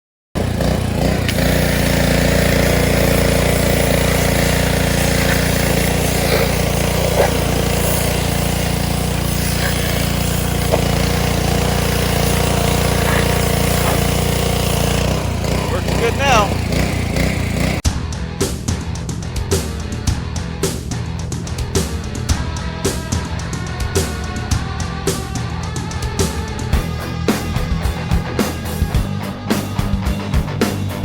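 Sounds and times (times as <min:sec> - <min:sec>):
pressure washer engine running: 0:00.4 - 0:17.8.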